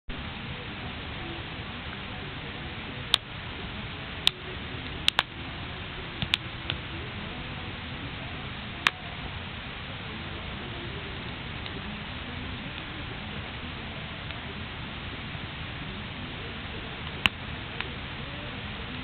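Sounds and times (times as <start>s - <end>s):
bonfire hissing: 0.1s - 19.0s
fire crackles and pops: 2.8s - 7.2s, 7.8s - 18.2s.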